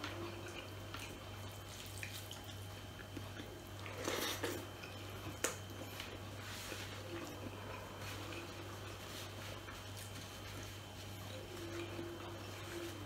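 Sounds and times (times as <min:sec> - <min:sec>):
soft chewing: 0:00.0 - 0:13.0
steady low hum: 0:00.0 - 0:13.0.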